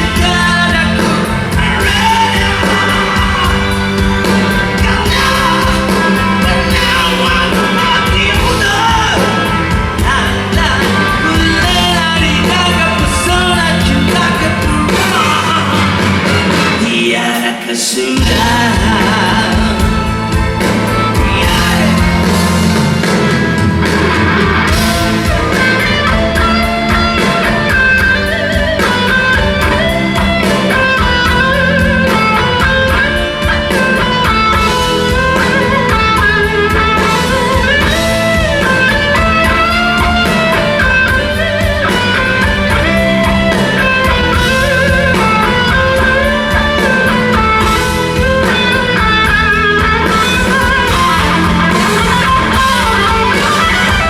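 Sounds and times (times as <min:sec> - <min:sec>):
electric guitar lead melody: 0:00.0 - 0:17.4, 0:18.2 - 0:54.0
rock band playing live: 0:00.0 - 0:54.0.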